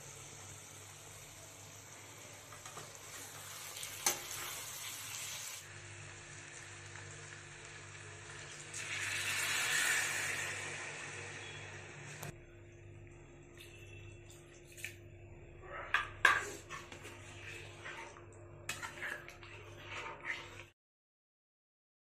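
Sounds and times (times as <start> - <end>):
food sizzling in a pan: 0.0 - 12.2
water poured into hot pan: 6.4 - 11.4.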